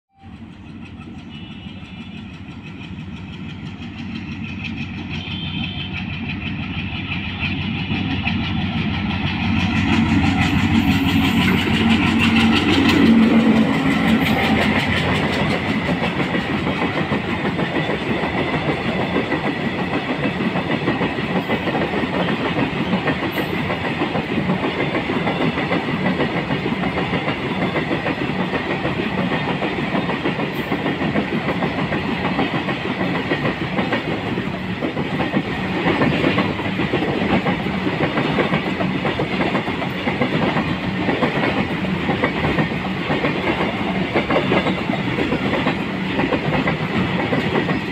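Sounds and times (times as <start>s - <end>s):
diesel locomotive engine passing: 0.1s - 47.9s
wheels clacking over rail joints: 0.4s - 47.9s.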